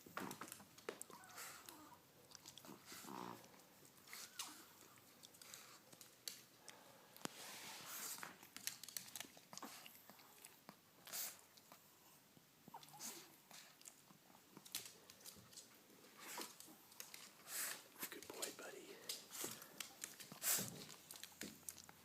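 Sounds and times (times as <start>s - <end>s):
dogs scuffling and clicking: 0.0s - 1.8s, 2.4s - 6.5s, 7.9s - 11.2s, 12.8s - 18.3s, 19.0s - 22.0s
dog whining: 1.0s - 2.1s, 12.7s - 13.4s.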